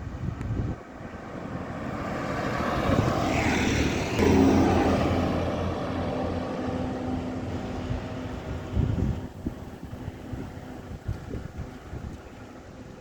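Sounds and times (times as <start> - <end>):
heavy vehicle passing: 1.0 - 10.8.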